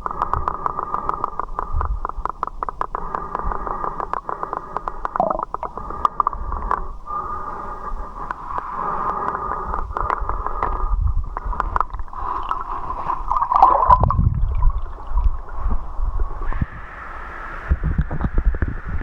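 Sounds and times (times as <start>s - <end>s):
water splashing and gurgling: 5.2s - 5.9s, 9.4s - 16.5s.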